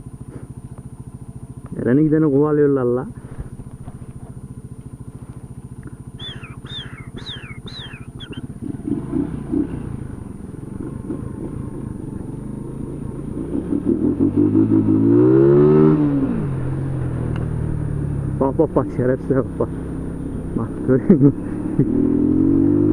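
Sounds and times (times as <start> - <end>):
motorcycle engine puttering: 3.2 - 14.1
short high falling cries: 6.2 - 8.4.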